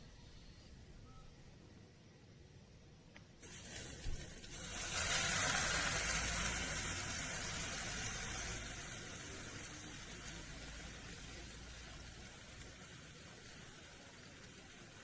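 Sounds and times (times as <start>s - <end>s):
food sizzling on hot pan: 3.4s - 15.0s.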